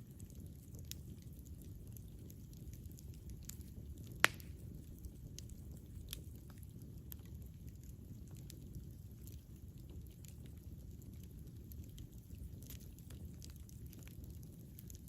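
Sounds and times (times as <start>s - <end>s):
campfire burning: 0.0s - 15.0s
fire crackling: 0.0s - 15.0s
loud sharp pop from fire: 4.2s - 4.6s.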